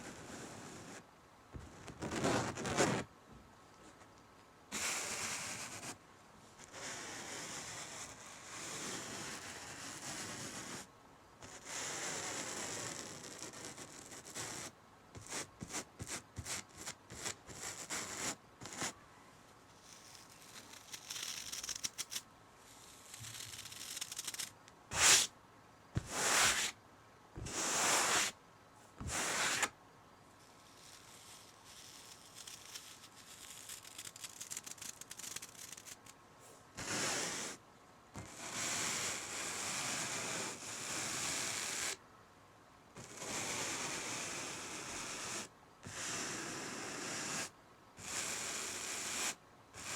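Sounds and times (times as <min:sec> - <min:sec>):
scratching on fabric: 0:00.0 - 0:01.0, 0:01.6 - 0:03.1, 0:04.7 - 0:06.0, 0:06.6 - 0:19.0, 0:19.7 - 0:25.3, 0:26.0 - 0:26.8, 0:27.4 - 0:28.4, 0:29.0 - 0:29.8, 0:30.4 - 0:36.2.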